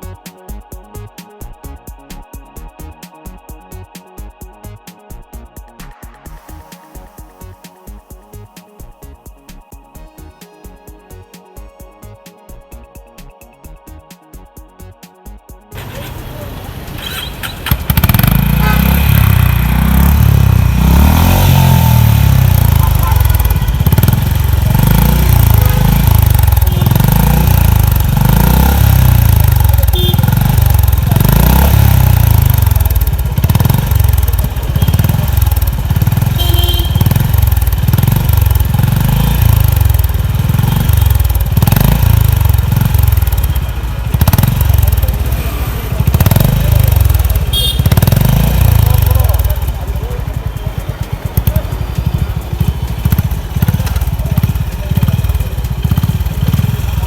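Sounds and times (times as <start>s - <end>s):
motorcycle engine revving: 15.7s - 57.0s.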